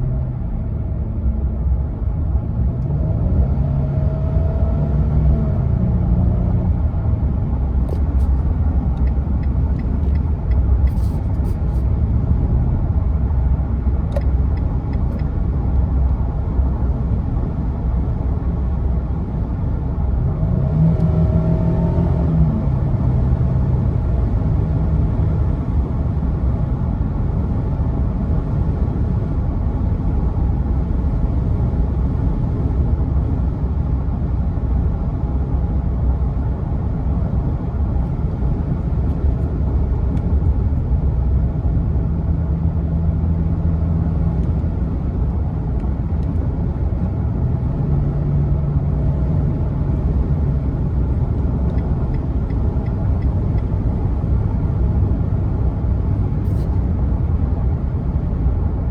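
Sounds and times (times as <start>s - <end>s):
truck engine and exhaust droning: 0.0s - 58.9s.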